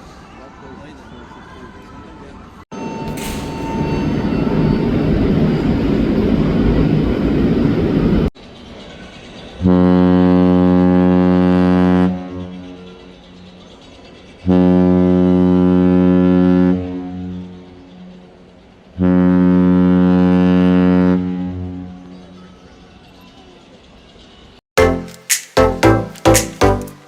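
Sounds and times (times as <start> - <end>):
ship horn deep blasts: 9.6 - 12.7, 14.5 - 17.7, 19.0 - 22.0.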